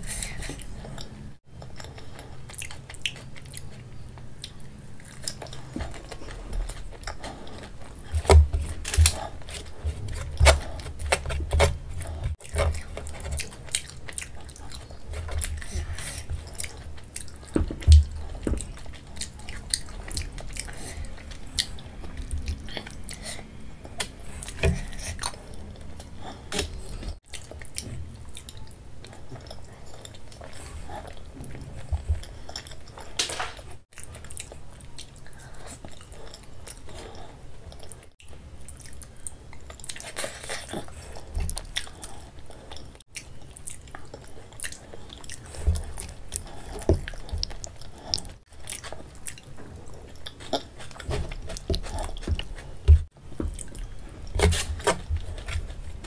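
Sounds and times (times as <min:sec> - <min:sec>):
chewing and wet mouth sounds: 0:00.0 - 0:33.2, 0:33.8 - 0:56.0.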